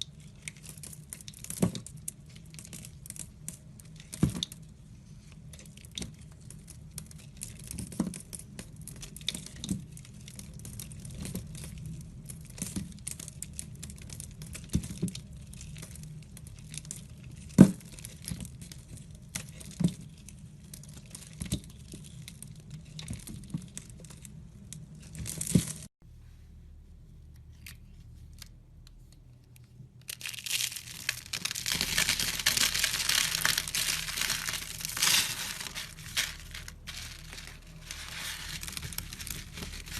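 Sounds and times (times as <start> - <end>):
dense continuous scraping: 30.2 - 39.9.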